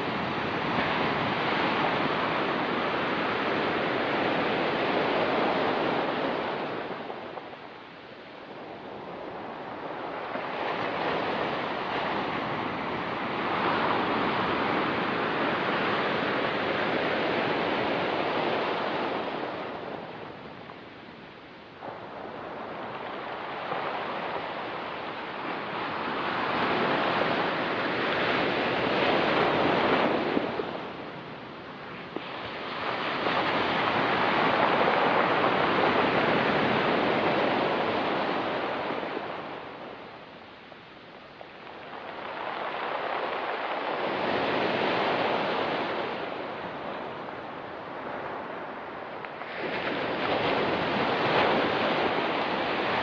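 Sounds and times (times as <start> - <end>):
waves breaking on pebble beach: 41.2 - 53.0.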